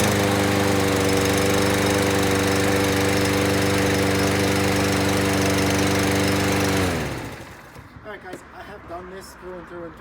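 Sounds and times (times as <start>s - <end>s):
lawn mower engine running: 0.0s - 7.8s.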